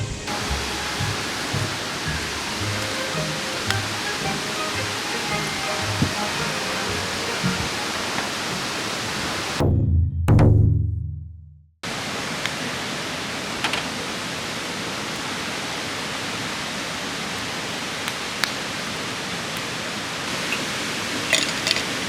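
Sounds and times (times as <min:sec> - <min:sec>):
musical note: 0:00.3 - 0:09.6
steady hiss: 0:00.3 - 0:09.6.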